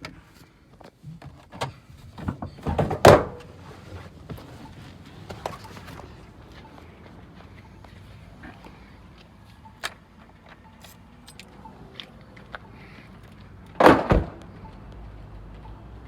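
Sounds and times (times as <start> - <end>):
truck door slamming: 2.2 - 3.5, 13.8 - 14.4.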